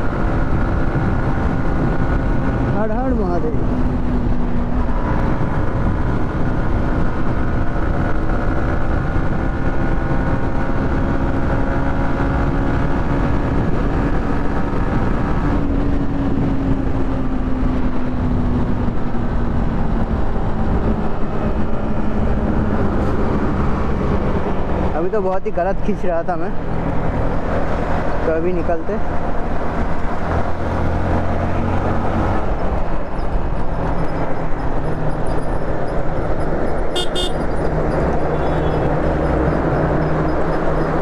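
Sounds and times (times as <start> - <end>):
wind rushing over microphone: 0.0 - 41.0
motorcycle engine running: 32.6 - 41.0.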